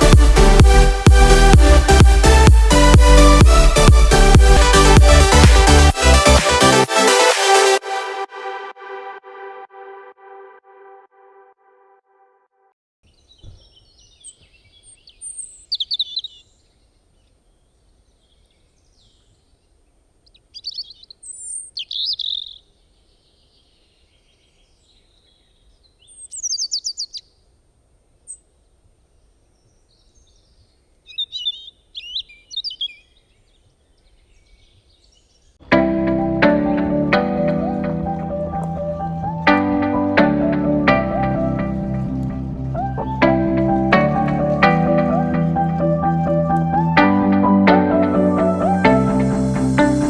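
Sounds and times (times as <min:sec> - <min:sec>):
birds chirping and trilling: 0:13.0 - 0:27.5, 0:28.2 - 0:35.6.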